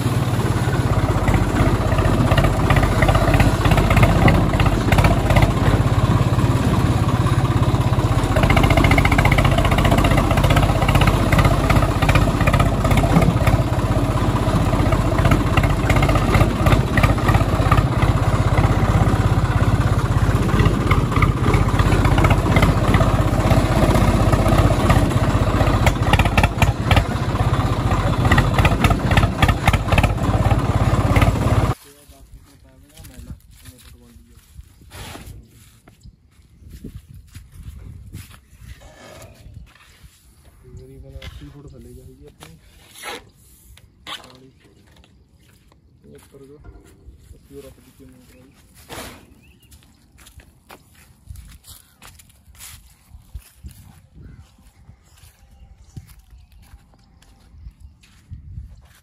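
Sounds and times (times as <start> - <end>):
engine running with rapid clatter: 0.0 - 31.8.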